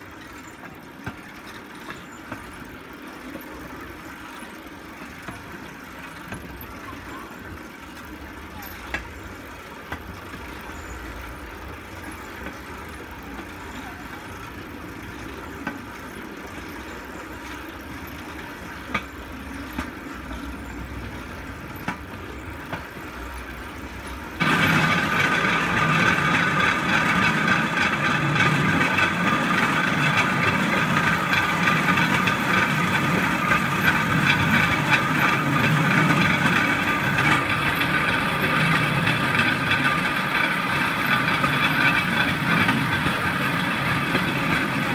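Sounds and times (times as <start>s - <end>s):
steel wheels rolling on rails: 0.0s - 44.9s.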